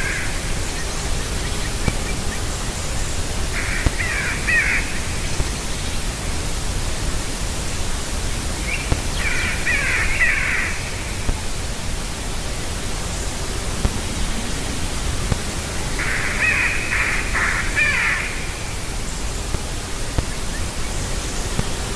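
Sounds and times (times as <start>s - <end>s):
distant harsh bird calls: 0.0s - 6.1s, 8.6s - 11.5s, 13.0s - 19.5s
steady hiss: 0.0s - 21.9s.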